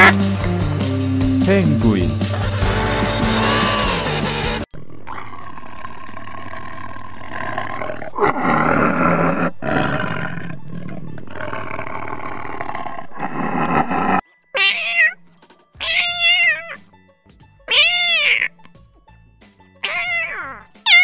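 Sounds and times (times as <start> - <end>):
tiger growling: 4.9 - 14.2
kitten meowing: 14.6 - 15.2, 15.8 - 16.8, 17.7 - 18.6, 19.8 - 21.0.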